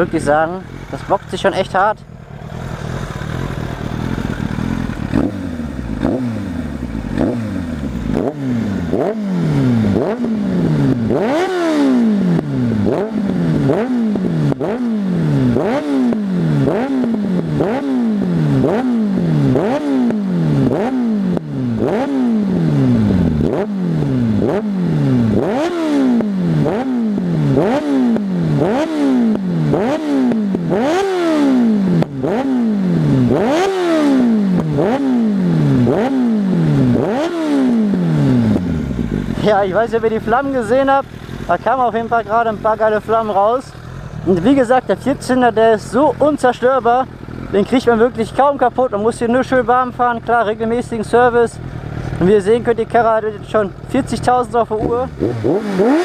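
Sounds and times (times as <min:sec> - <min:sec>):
exhaust popping: 0:00.0 - 0:31.0, 0:34.4 - 0:56.0
motorcycle engine revving: 0:00.0 - 0:56.0.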